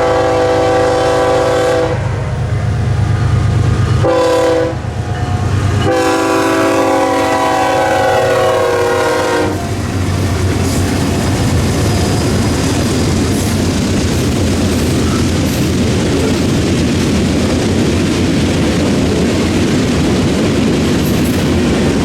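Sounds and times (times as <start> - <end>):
locomotive air horn blasts: 0.0 - 2.2, 4.0 - 4.9, 5.8 - 9.8
locomotive engine rumbling: 0.0 - 22.0
train wheels clattering on rails: 4.9 - 22.0.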